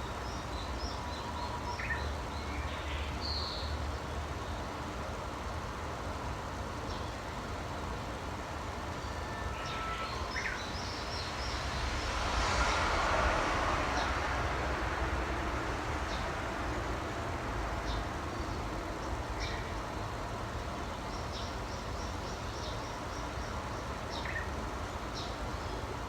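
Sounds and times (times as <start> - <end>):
broad rushing noise: 10.1 - 20.3
low outdoor rumble: 10.3 - 26.0.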